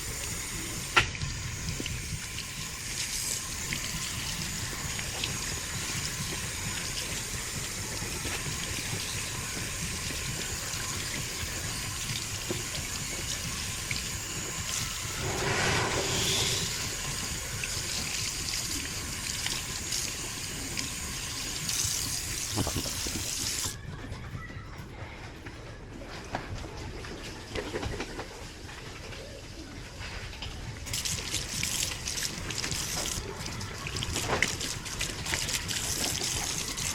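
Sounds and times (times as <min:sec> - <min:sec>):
air filter being scrubbed: 0:15.0 - 0:17.4
water running and splashing: 0:30.9 - 0:36.9.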